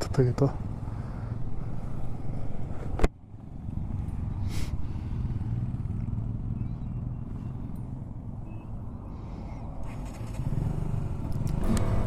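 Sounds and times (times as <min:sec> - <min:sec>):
motorcycle engine running: 0:10.5 - 0:12.0.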